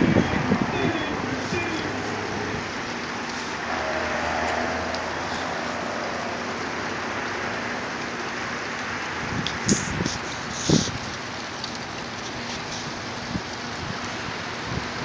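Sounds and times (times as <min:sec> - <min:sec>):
sandstorm wind hissing: 0:00.0 - 0:08.5.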